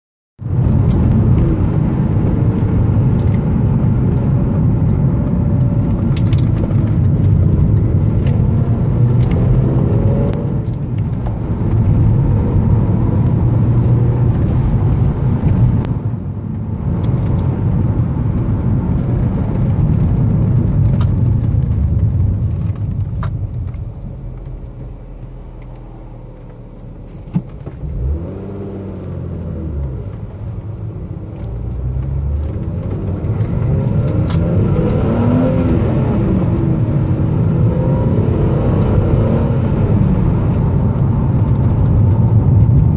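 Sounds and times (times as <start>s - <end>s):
car engine accelerating: 0.4s - 42.9s.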